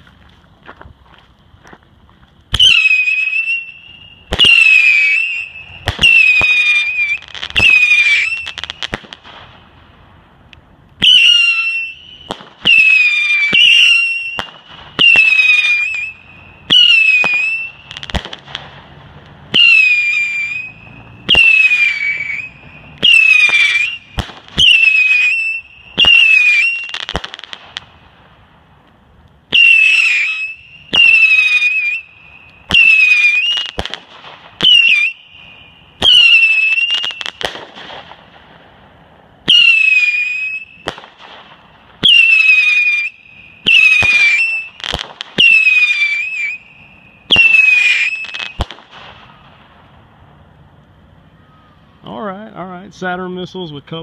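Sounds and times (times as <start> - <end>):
whistling firework missiles: 2.5 - 10.1, 10.9 - 28.5, 29.4 - 50.5
firework pops: 12.2 - 16.1, 21.3 - 25.3, 36.0 - 38.5, 39.5 - 46.6, 47.3 - 49.8.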